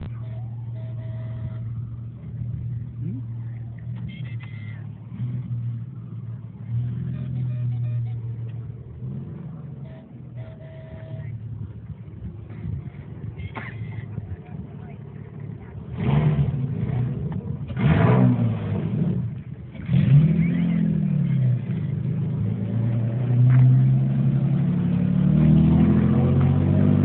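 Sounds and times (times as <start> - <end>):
car engine low exhaust drone: 0.0 - 27.0.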